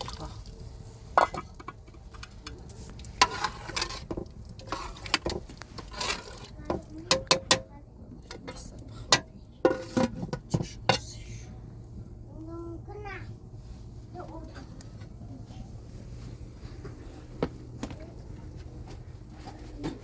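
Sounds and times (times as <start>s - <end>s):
metal utensil clinking on pots: 1.1s - 11.2s.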